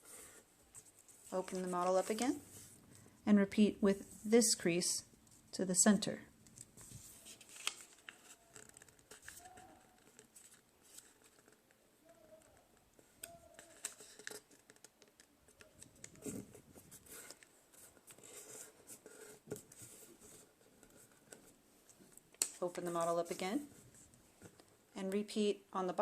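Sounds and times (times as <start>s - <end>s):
paper rustling and scraping: 0.0s - 2.8s, 6.8s - 11.7s.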